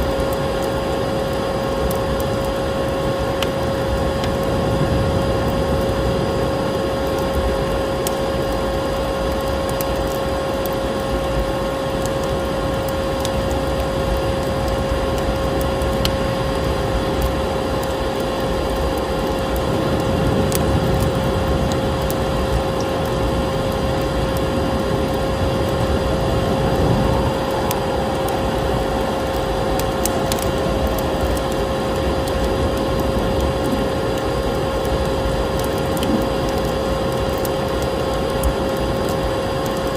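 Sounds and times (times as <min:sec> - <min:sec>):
wood fire crackling: 0:00.0 - 0:39.9
vacuum cleaner running: 0:24.2 - 0:34.8.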